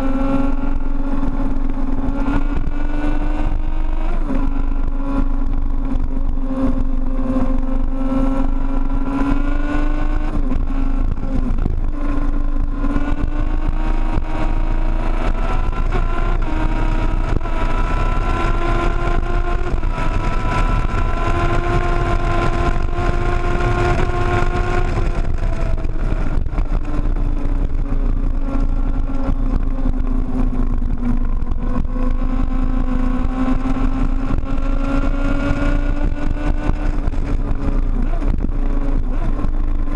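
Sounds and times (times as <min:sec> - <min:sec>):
motorcycle engine running hard: 0:00.0 - 0:39.9
wind rushing: 0:06.0 - 0:39.9.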